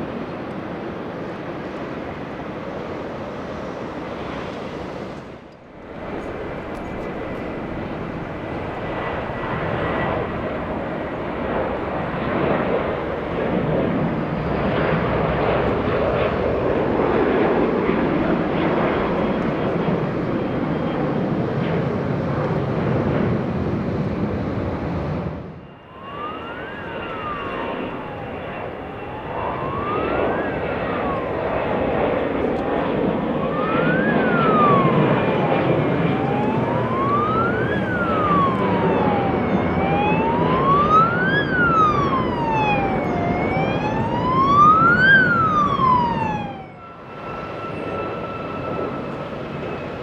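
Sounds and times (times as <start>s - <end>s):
emergency vehicle siren wailing: 25.5s - 50.0s.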